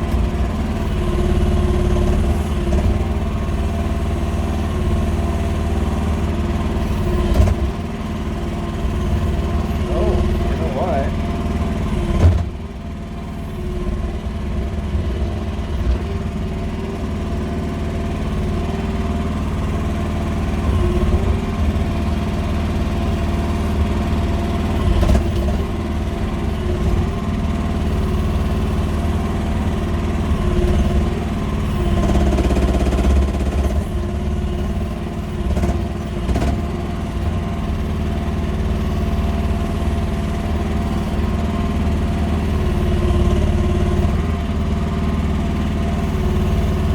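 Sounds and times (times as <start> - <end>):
excavator engine running: 0.0 - 46.9.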